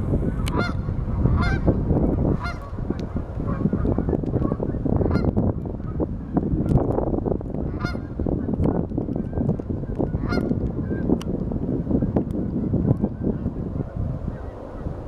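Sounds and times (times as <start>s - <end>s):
flock of geese honking: 0.2s - 5.3s, 7.7s - 8.2s, 10.1s - 11.1s, 12.4s - 15.0s.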